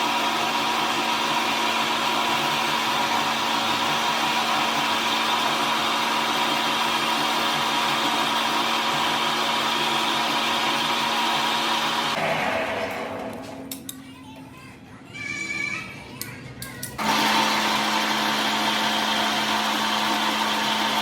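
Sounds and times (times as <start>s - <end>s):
power tool motor whining: 17.0s - 21.0s.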